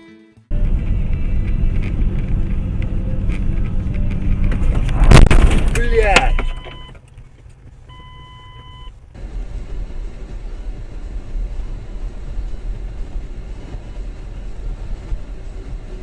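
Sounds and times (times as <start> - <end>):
car driving rumble: 0.5 - 16.0
short electronic beep: 6.2 - 7.0, 7.9 - 8.9.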